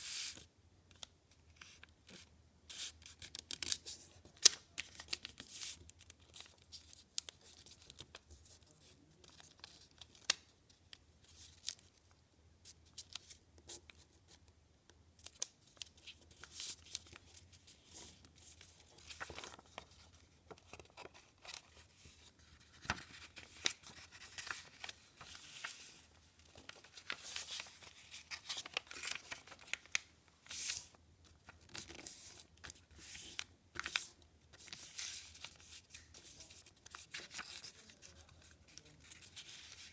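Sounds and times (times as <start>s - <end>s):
paper rustling and creasing: 15.2s - 39.9s.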